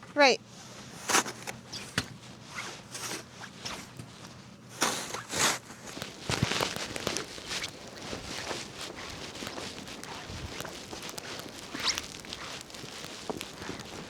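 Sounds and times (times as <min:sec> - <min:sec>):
footsteps in deep snow: 0:04.8 - 0:14.0.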